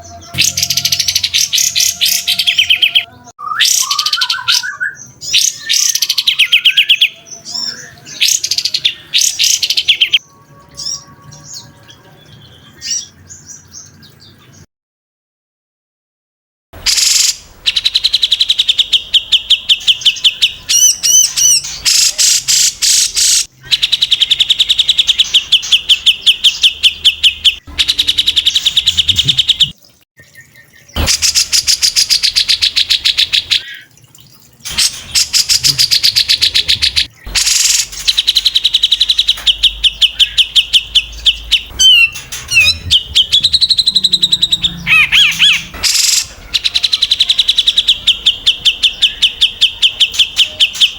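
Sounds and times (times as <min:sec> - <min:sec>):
songbird trilling: 0:00.0 - 0:10.2, 0:34.7 - 0:50.9
whistled bird phrases: 0:00.0 - 0:13.7, 0:34.7 - 0:50.9.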